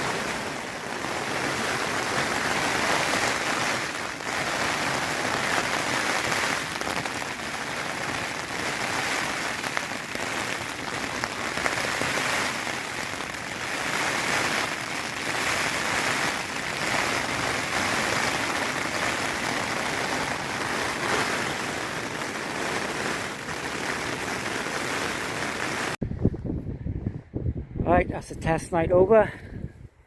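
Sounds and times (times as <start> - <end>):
heavy rain on a tent: 0.0 - 26.0.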